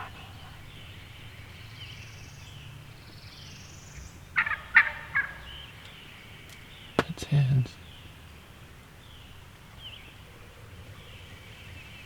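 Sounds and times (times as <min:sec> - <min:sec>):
turkey gobbling: 0:04.4 - 0:05.7.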